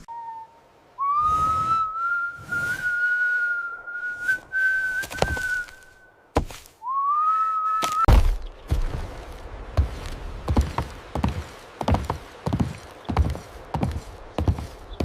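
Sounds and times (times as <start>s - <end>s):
person whistling: 0.0s - 6.1s, 6.8s - 8.1s.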